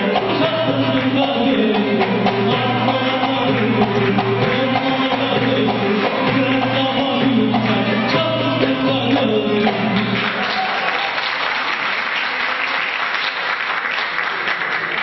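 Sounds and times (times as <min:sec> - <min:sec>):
live singing with instruments: 0:00.0 - 0:11.2
audience applause: 0:09.6 - 0:15.0.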